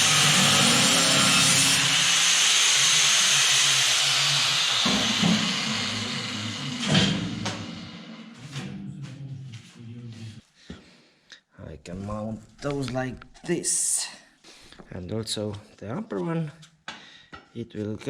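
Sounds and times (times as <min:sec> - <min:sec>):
angle grinder cutting steel: 0:00.0 - 0:08.4.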